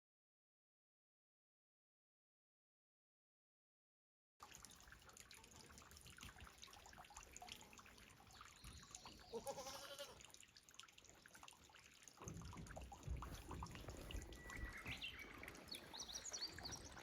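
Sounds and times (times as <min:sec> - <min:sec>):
goat bleating: 0:09.3 - 0:10.3.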